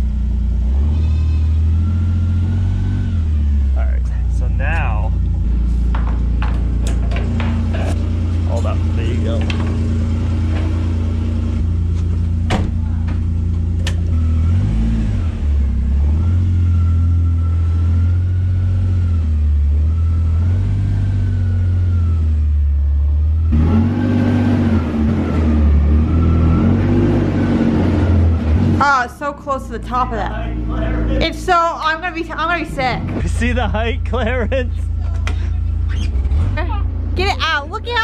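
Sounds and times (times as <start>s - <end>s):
vehicle engine running under load: 0.0s - 38.0s.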